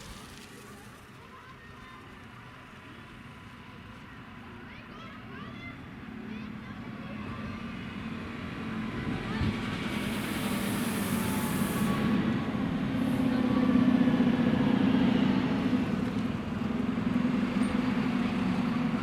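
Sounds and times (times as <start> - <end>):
diesel train engine droning: 0.0 - 19.0
high hiss: 9.7 - 13.3.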